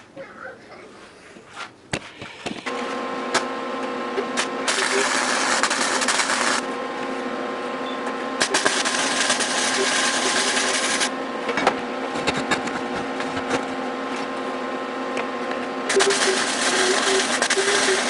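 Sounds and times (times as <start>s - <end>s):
machine humming: 2.3s - 18.0s.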